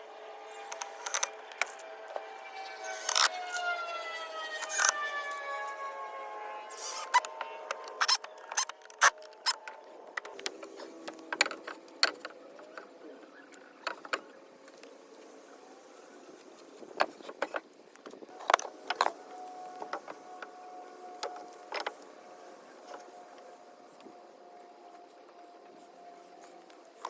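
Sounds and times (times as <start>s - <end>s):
lumber and tools handled: 0.5s - 2.2s, 2.8s - 3.8s, 4.5s - 5.4s, 6.7s - 13.0s.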